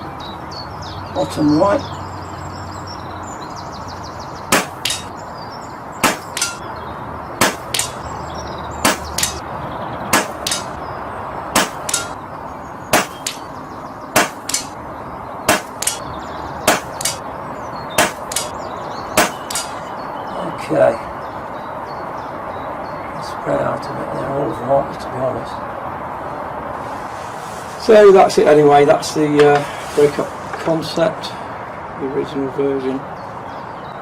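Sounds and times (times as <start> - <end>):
air rifle shots: 4.5 - 5.1, 6.0 - 6.6, 7.4 - 8.0, 8.8 - 9.4, 10.1 - 10.8, 11.6 - 12.2, 12.9 - 13.5, 14.2 - 14.8, 15.5 - 16.0, 16.7 - 17.2, 18.0 - 18.5, 19.2 - 19.8
pellet striking target: 4.5 - 5.1, 6.0 - 6.6, 7.4 - 8.0, 8.8 - 9.4, 10.1 - 10.8, 11.6 - 12.2, 12.9 - 13.5, 14.2 - 14.7, 15.5 - 16.0, 16.7 - 17.2, 18.0 - 18.5, 19.2 - 19.8.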